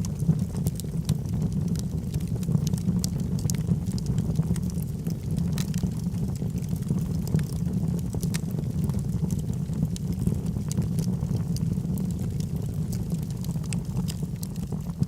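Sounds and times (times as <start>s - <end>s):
crackles and pops of fire: 0.0s - 15.0s
log fire burning: 0.0s - 15.0s.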